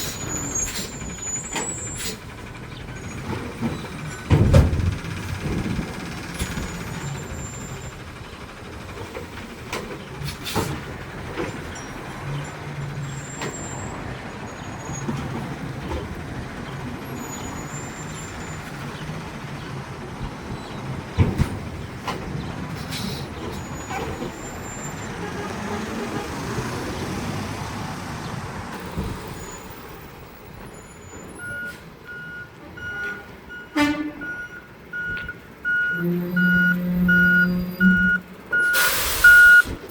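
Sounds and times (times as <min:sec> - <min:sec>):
garbage truck engine and mechanism: 0:00.0 - 0:39.9
knocks and bang: 0:03.3 - 0:07.0
reversing beeper: 0:30.8 - 0:39.7.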